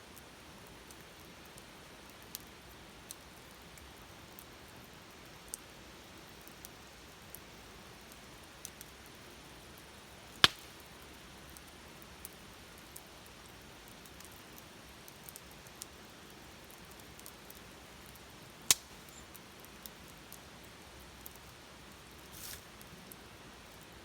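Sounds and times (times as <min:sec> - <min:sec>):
low steady hiss: 0:00.0 - 0:24.0
wood fire crackling: 0:00.1 - 0:24.0
sharp loud pops: 0:10.4 - 0:10.8.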